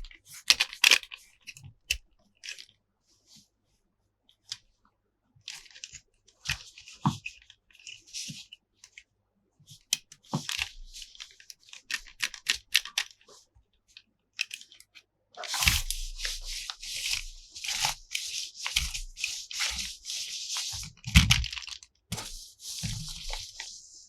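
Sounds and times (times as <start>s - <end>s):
packaging tearing and crinkling: 15.4s - 16.0s.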